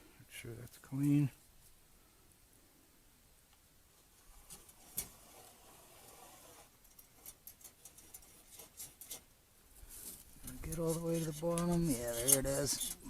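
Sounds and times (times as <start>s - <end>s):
metal poker scraping in tube: 4.4s - 9.3s, 10.4s - 13.0s.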